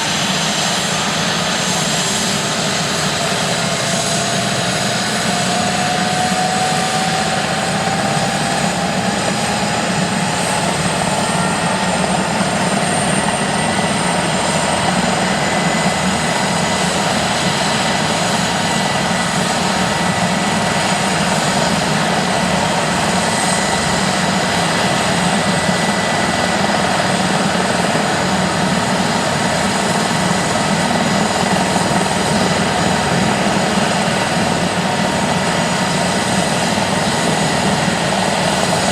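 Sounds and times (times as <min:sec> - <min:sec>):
helicopter rotor rushing: 0:00.0 - 0:38.9
turbine whine: 0:00.0 - 0:38.9.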